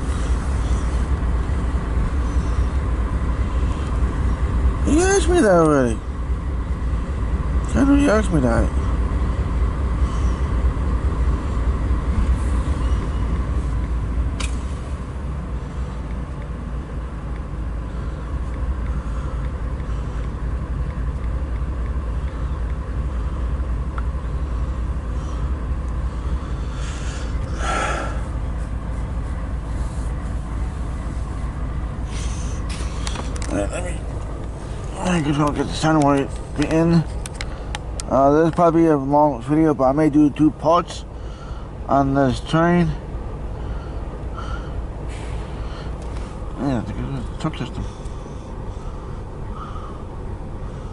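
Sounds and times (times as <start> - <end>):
diesel engine idling: 0.0 - 50.9
short hiss: 45.1 - 46.4.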